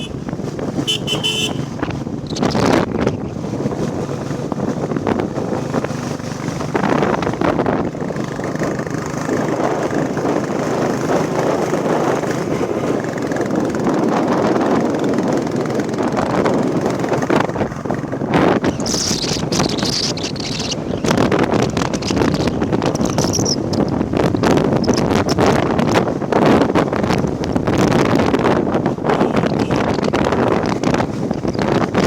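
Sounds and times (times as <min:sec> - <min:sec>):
motorcycle engine running: 0:00.0 - 0:32.0
road and wind noise: 0:00.0 - 0:32.0.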